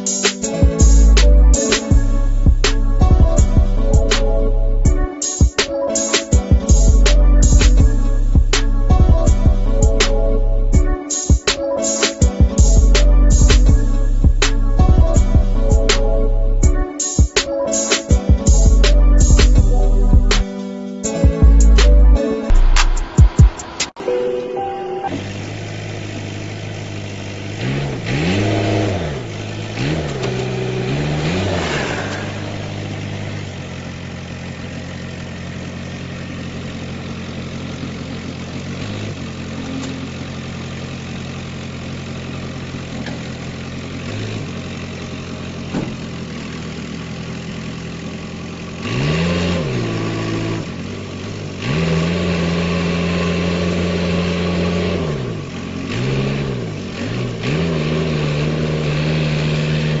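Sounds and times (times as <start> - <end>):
vehicle engine revving: 21.5 - 23.9, 25.1 - 60.0.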